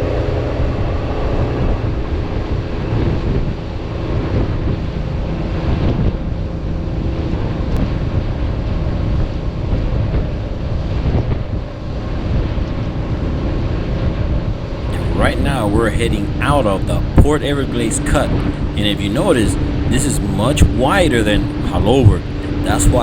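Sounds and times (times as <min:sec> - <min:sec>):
boat engine droning: 0:00.0 - 0:09.6, 0:14.6 - 0:23.0.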